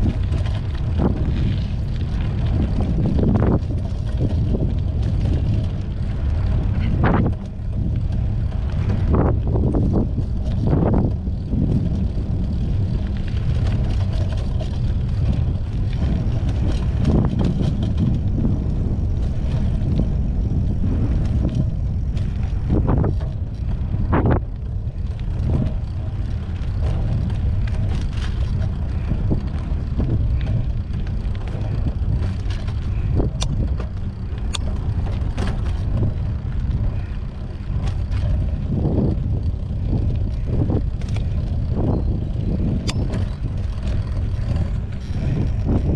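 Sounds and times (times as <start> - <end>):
bike knocks and rattles: 0.0 - 45.9
wind rumbling on microphone: 0.0 - 45.9.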